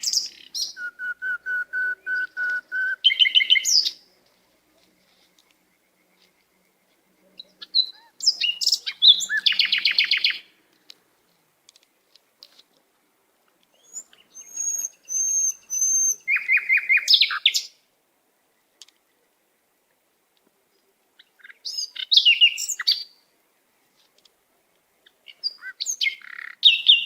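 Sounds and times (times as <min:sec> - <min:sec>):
songbird singing with trills: 0:00.0 - 0:04.2, 0:05.3 - 0:10.5, 0:13.7 - 0:17.8, 0:21.2 - 0:23.2, 0:25.0 - 0:27.0.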